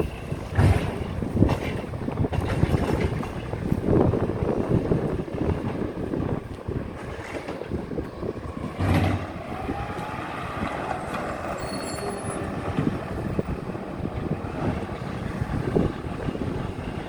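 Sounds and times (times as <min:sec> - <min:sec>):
garbage truck running: 0:00.0 - 0:17.0.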